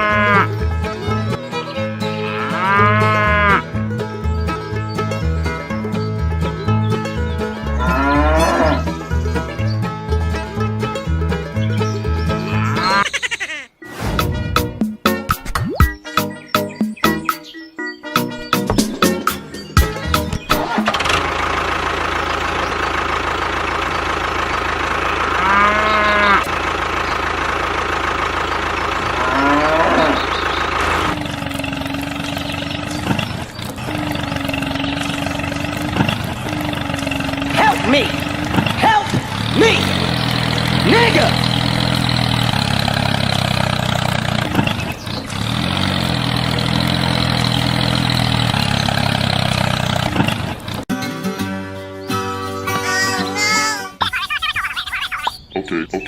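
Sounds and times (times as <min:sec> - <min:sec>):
cow mooing: 0:00.0 - 0:00.6, 0:02.1 - 0:03.7, 0:07.7 - 0:08.9, 0:12.4 - 0:13.0, 0:25.3 - 0:26.5, 0:29.0 - 0:30.4
engine running: 0:00.0 - 0:13.0, 0:18.5 - 0:50.9.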